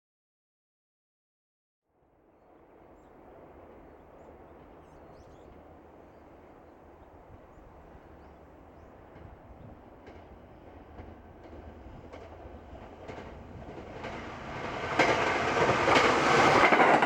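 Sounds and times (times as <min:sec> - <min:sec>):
distant train rumble: 0:02.0 - 0:17.0
bird chirps: 0:04.0 - 0:09.7.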